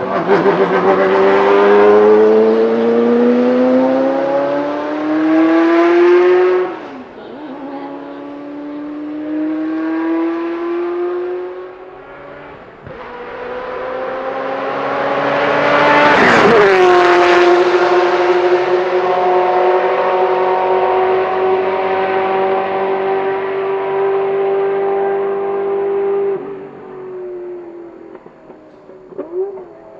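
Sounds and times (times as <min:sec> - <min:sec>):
sports car accelerating hard: 0:00.0 - 0:29.9
car passing by: 0:08.3 - 0:26.8.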